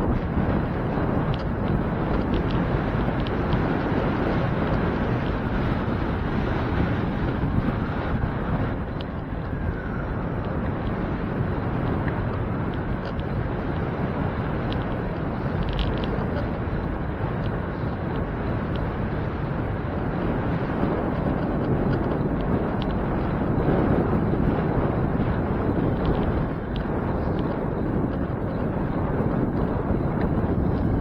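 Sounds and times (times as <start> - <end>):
road noise: 0.0 - 31.0
wind on microphone: 0.0 - 31.0
faint ticks: 0.3 - 6.9, 7.5 - 19.1, 24.7 - 28.7.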